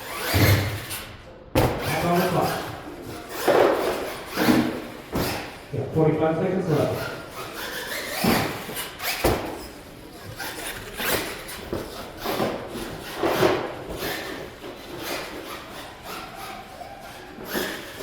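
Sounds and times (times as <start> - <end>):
toy truck thumping on wooden ramps: 0.1 - 5.6, 7.3 - 15.6.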